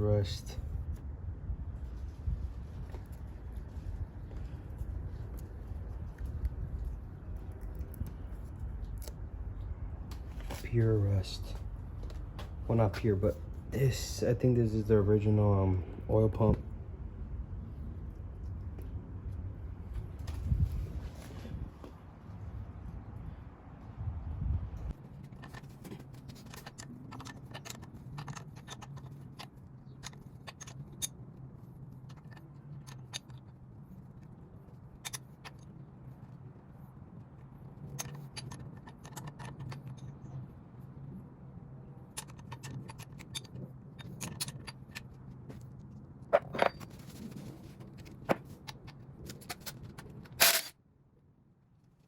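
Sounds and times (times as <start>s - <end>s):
steady low hum: 0.0s - 52.0s
metal tools and bolts clinking: 25.4s - 31.2s, 37.8s - 40.3s, 42.1s - 45.2s, 46.3s - 50.8s.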